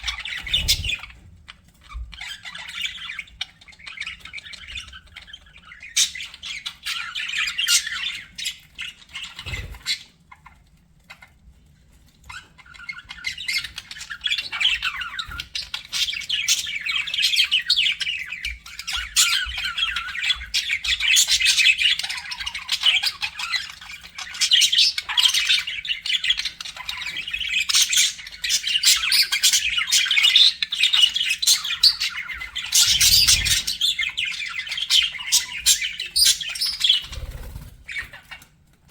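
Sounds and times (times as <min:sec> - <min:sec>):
budgerigars chattering: 0:00.0 - 0:01.2, 0:12.3 - 0:38.5.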